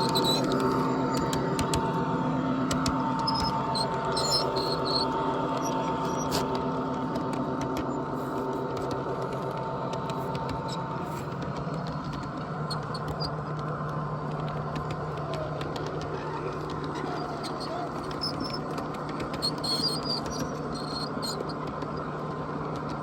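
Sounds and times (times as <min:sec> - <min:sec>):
motor humming steadily: 0:00.0 - 0:23.0.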